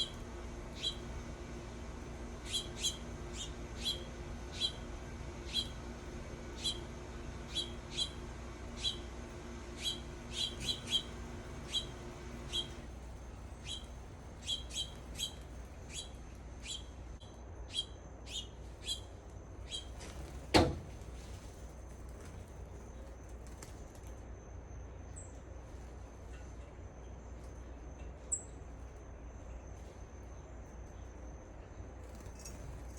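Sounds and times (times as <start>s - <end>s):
bird chip calls: 0.7s - 1.0s, 2.4s - 4.8s, 6.6s - 6.8s, 7.5s - 8.2s, 8.8s - 9.1s, 9.8s - 12.8s, 13.6s - 16.9s.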